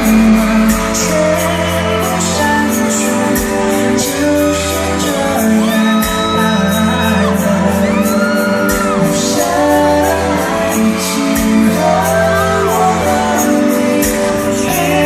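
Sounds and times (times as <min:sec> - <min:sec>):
crowd screaming: 0:00.0 - 0:11.2
loud distorted concert music: 0:00.0 - 0:15.0.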